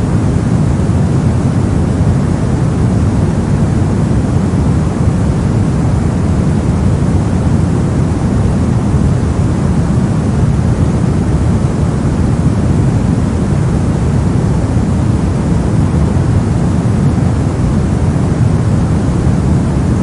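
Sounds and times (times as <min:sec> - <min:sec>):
steady low heavy noise: 0:00.0 - 0:20.0.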